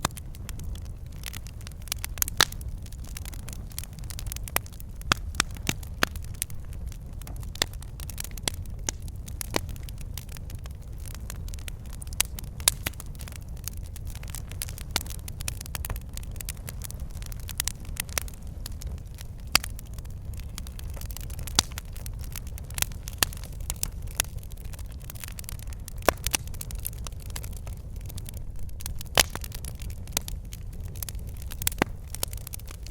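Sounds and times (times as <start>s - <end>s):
wood fire crackling and popping: 0.0s - 32.9s.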